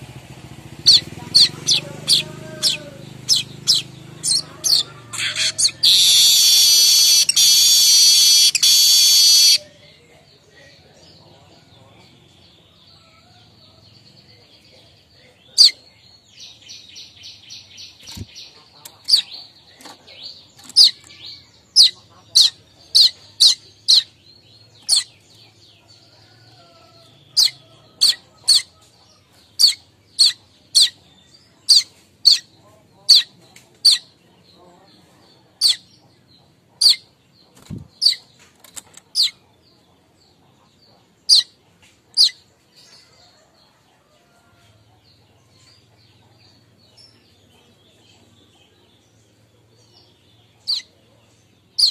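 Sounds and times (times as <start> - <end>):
bird chip notes: 0.9 - 9.6.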